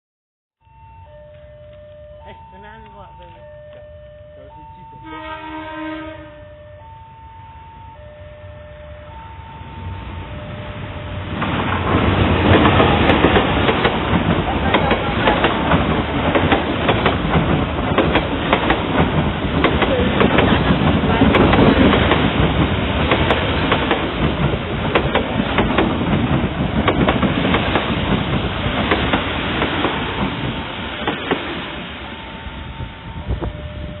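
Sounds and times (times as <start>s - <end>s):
train wheels clattering over rail joints: 11.4s - 31.8s.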